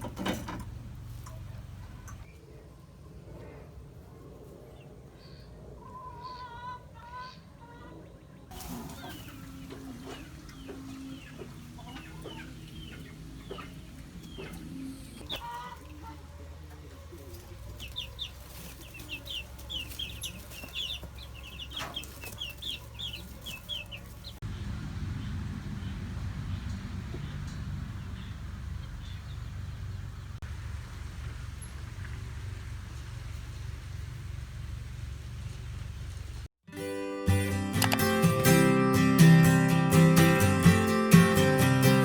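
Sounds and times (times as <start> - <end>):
chickens clucking and peeping: 0.0 - 3.0, 5.2 - 30.4.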